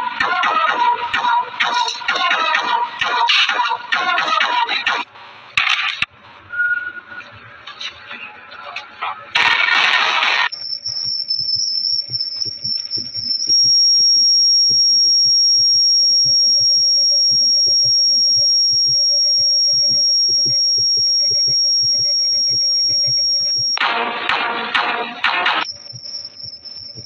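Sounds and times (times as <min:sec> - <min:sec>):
high-pitched electronic whine: 0:06.0 - 0:27.0.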